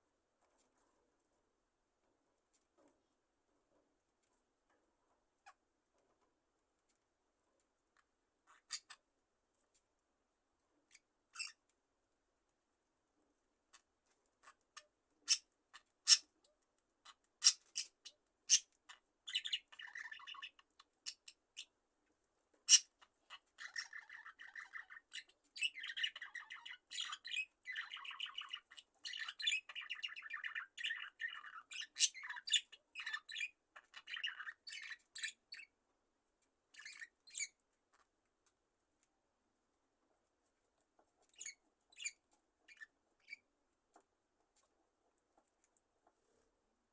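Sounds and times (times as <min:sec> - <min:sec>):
budgerigars chirping: 0:17.0 - 0:21.7, 0:22.7 - 0:35.7, 0:36.8 - 0:37.6, 0:41.3 - 0:43.4.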